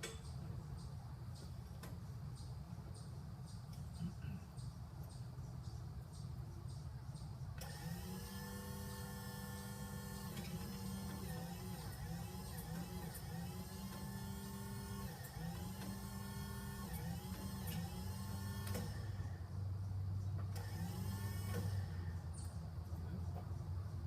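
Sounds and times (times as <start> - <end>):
electric motor whining: 7.6 - 19.4, 20.5 - 22.2.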